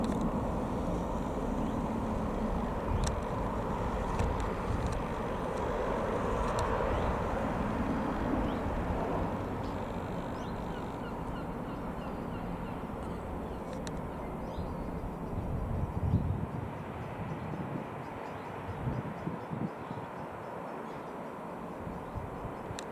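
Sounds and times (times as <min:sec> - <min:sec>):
jet engines rumbling: 0:00.0 - 0:16.1
small bird chirping: 0:00.8 - 0:16.2.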